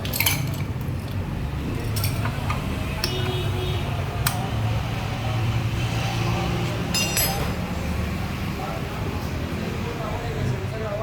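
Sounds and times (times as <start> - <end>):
metallic clinks: 6.9 - 7.5.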